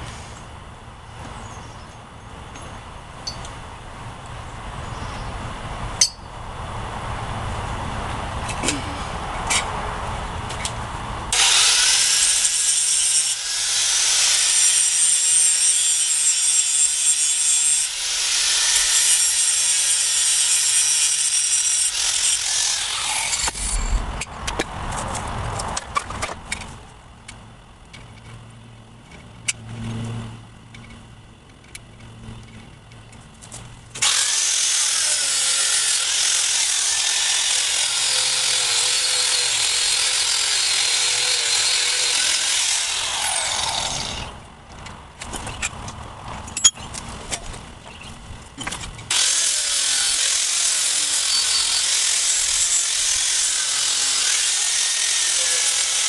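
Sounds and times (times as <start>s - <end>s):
angle grinder grinding steel: 11.3s - 24.0s, 34.0s - 44.4s, 49.1s - 56.0s.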